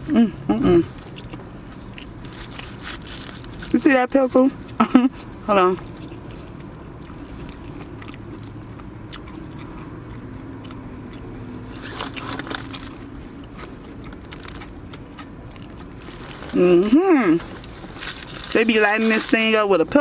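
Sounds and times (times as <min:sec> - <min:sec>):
person chewing crunchy food: 0:00.9 - 0:03.7, 0:04.7 - 0:16.6.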